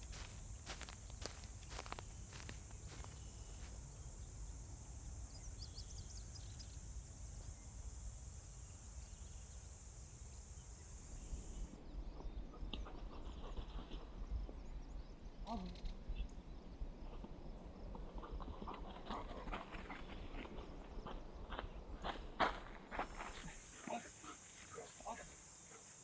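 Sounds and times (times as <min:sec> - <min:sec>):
bird chirping: 0:00.0 - 0:07.9
insects buzzing: 0:00.0 - 0:11.8, 0:23.0 - 0:26.0.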